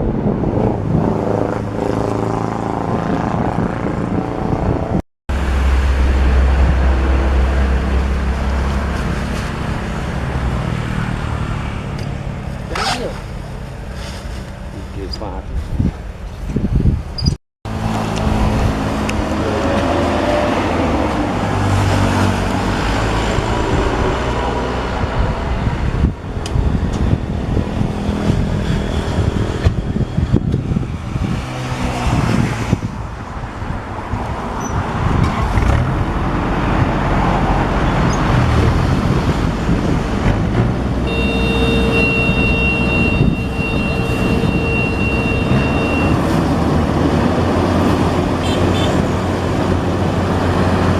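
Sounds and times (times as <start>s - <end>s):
combine harvester diesel engine droning: 40.9s - 50.9s
high electronic tone: 41.1s - 46.3s.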